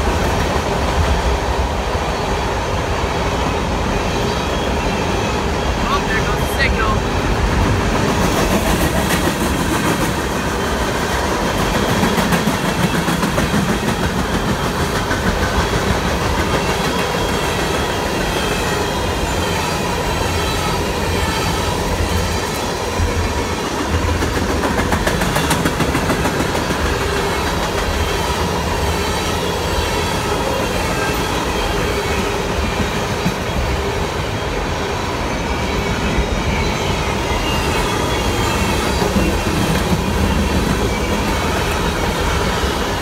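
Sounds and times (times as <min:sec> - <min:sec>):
freight train wheels on rails: 0:00.0 - 0:43.0.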